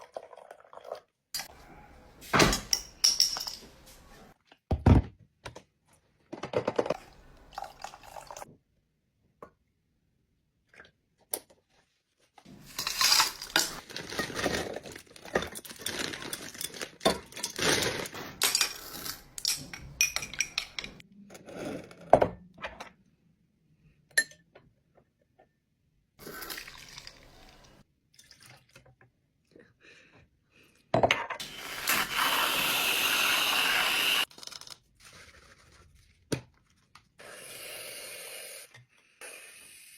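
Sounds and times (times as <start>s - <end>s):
glassware and utensils clinking: 2.5s - 3.8s, 18.4s - 21.0s
liquid pouring: 7.0s - 8.4s, 26.2s - 28.8s.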